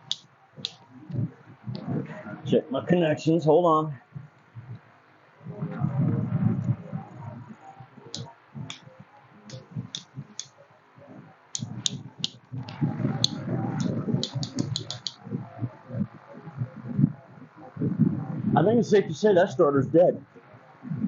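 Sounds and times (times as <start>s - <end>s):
cable handling noise: 11.6s - 15.2s
cable clamps clicking on terminals: 13.2s - 15.2s.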